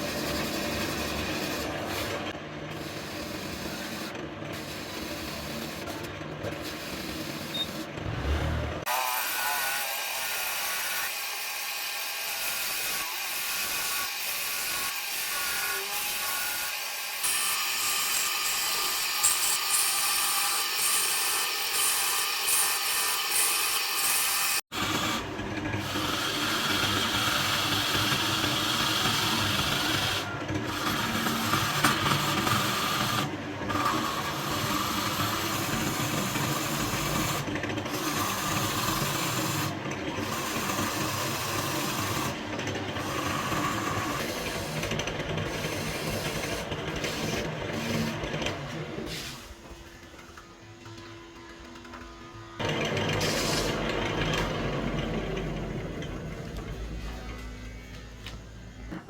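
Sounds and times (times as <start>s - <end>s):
wood lathe running: 0.0s - 15.5s, 16.3s - 57.2s
tool scraping spinning wood: 24.7s - 57.6s.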